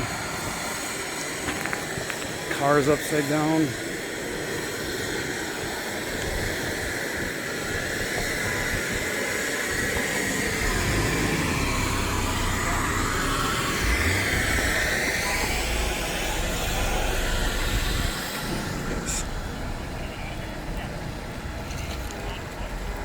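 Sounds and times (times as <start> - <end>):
outdoor noise hiss: 0.0 - 23.0
vehicle engine passing: 10.4 - 22.9.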